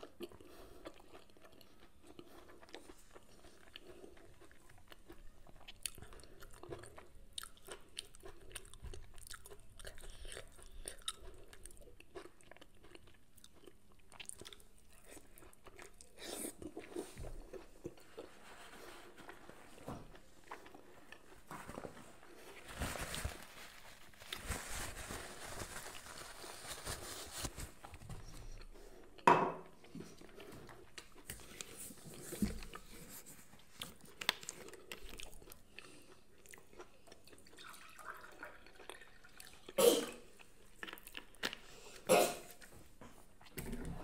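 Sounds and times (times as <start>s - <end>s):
person chewing: 0.0s - 21.4s, 27.7s - 38.0s, 38.6s - 42.7s
paper towel rustling: 21.3s - 28.6s.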